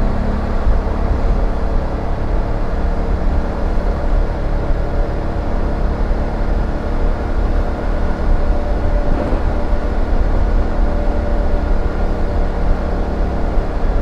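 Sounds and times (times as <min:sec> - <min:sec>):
wind and road noise: 0:00.0 - 0:14.0
motorcycle engine running: 0:06.4 - 0:11.4.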